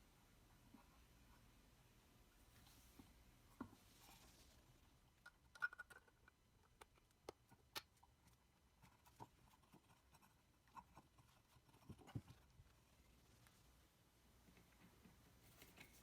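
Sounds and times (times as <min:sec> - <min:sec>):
faint sharp clicks and taps: 0:05.2 - 0:12.8.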